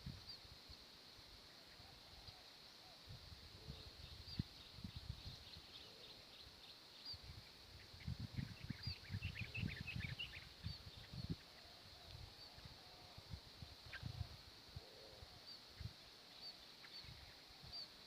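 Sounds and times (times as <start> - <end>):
small birds chirping: 3.7 - 18.0.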